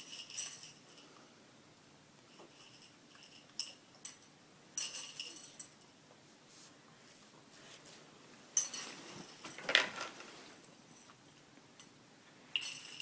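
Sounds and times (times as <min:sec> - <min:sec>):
light clinking and rattling: 0:00.0 - 0:01.3, 0:02.2 - 0:06.0, 0:08.5 - 0:13.0.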